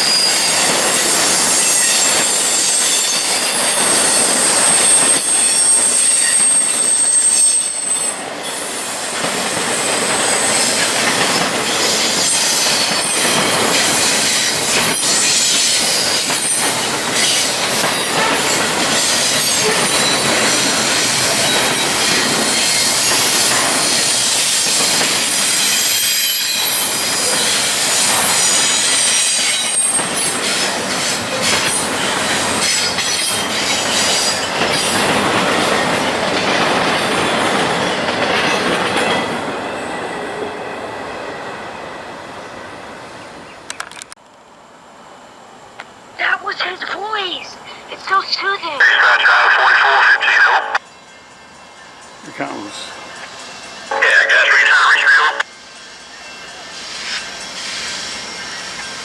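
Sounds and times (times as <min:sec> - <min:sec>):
train wheels squealing and clacking: 0:00.0 - 0:42.3, 0:50.8 - 0:53.9, 0:55.5 - 0:59.0.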